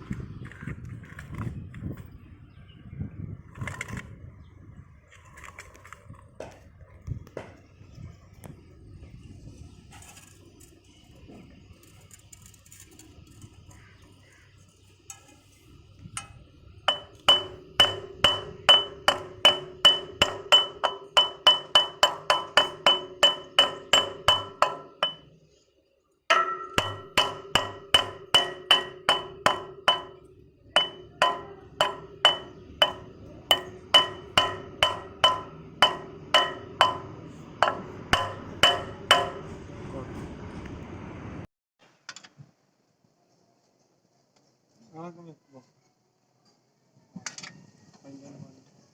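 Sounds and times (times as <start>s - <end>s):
hammer ringing on metal: 16.9s - 25.4s, 26.3s - 39.6s.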